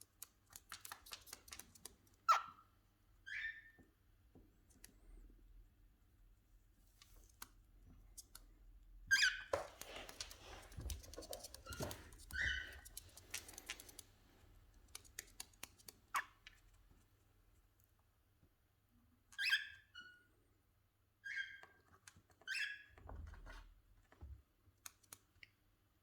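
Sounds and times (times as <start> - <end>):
beak clicks and pecks: 0.0 - 2.3, 9.6 - 16.6, 24.8 - 25.6
cockatiels harsh chirps: 11.7 - 13.0.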